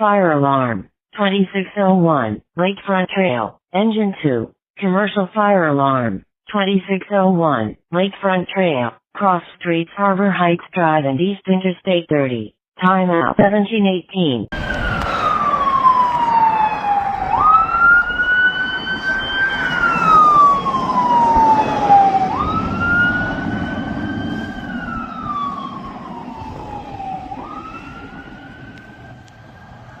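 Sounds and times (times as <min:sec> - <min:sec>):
engine rumble: 0:14.6 - 0:30.0
fire engine siren wailing: 0:14.6 - 0:30.0.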